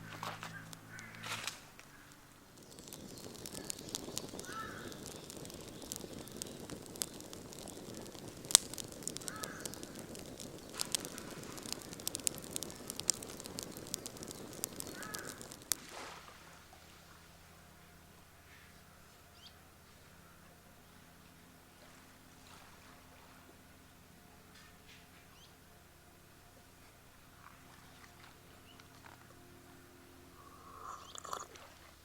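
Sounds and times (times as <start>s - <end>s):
bird calling: 0.0s - 15.8s, 24.6s - 25.6s
campfire crackling and popping: 0.0s - 32.0s.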